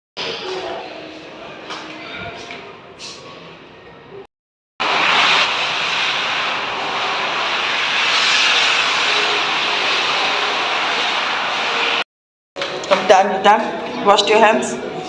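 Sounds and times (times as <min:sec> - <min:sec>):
electric hand dryer blowing: 0:04.8 - 0:12.0.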